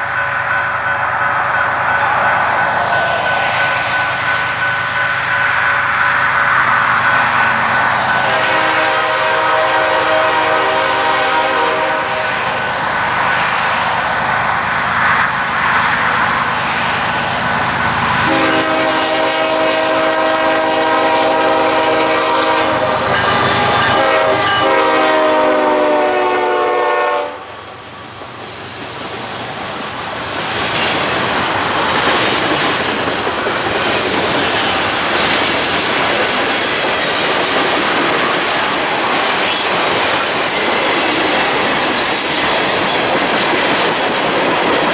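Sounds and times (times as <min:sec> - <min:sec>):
train wheels clacking on rails: 0:00.0 - 0:44.9
train horn chord blasts: 0:08.1 - 0:12.5, 0:18.2 - 0:27.5.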